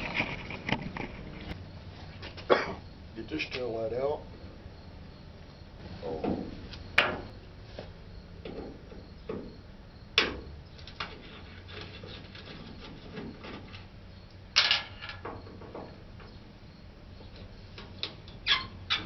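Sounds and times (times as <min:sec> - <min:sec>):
faint scraping and handling: 0:10.8 - 0:13.9.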